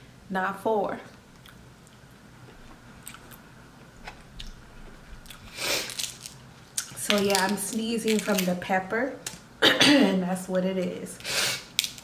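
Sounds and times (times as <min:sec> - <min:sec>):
person chewing food: 0:01.3 - 0:07.0.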